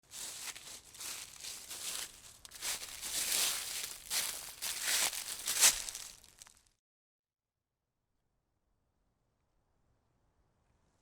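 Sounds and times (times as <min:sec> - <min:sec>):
dry rustling and crinkling: 0:00.0 - 0:06.7.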